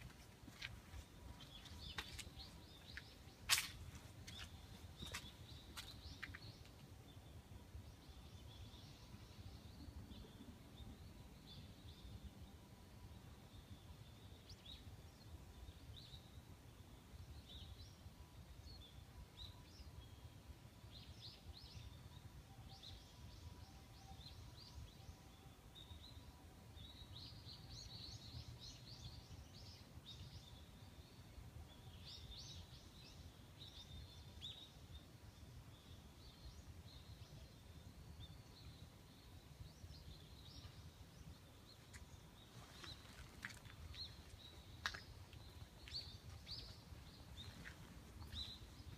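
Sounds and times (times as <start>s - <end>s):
small birds chirping: 0.0s - 12.2s, 26.8s - 48.9s.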